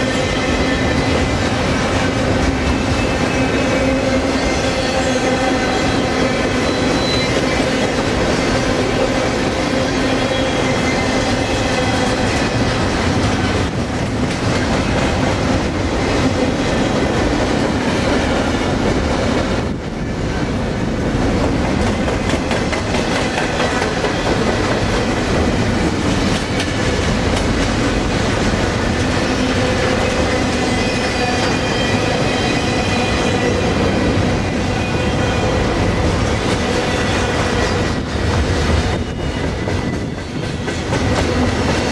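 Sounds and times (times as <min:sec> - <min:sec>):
train wheels rumbling on rails: 0:00.0 - 0:41.9
thin squealing of wheels: 0:05.9 - 0:07.8.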